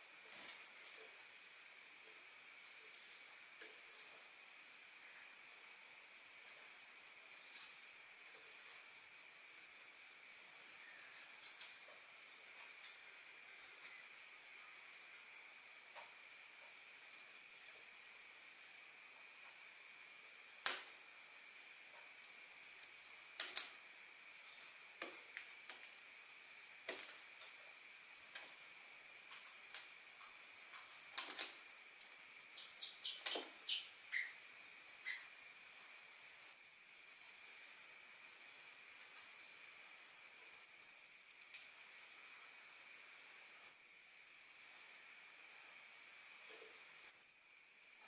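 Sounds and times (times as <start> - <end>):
bird whistling downward: 7.1 - 8.4, 10.3 - 11.6, 13.6 - 14.6, 17.2 - 18.4, 22.3 - 23.2, 28.2 - 29.2, 32.0 - 37.5, 40.6 - 41.8, 43.7 - 44.7, 47.1 - 48.0.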